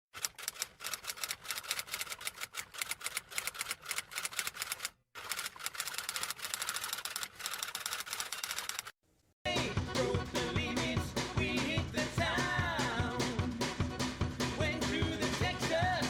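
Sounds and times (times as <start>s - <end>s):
rapid typing clicks: 0.2s - 8.9s.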